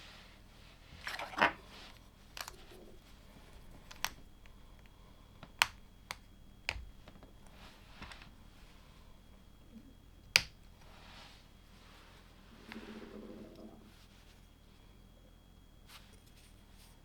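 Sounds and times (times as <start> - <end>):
sharp plastic clicks: 3.7 - 8.3.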